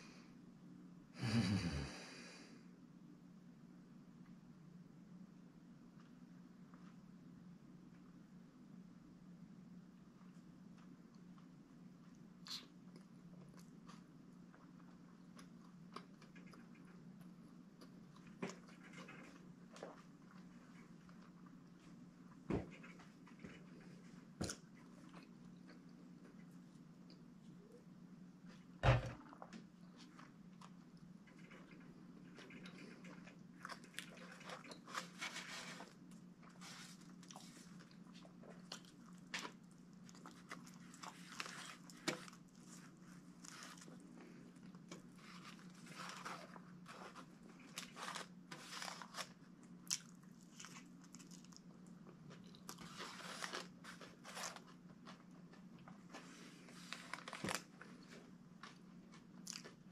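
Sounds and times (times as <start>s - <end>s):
steady low hum: 0.0s - 59.9s
wet chewing: 29.3s - 56.3s.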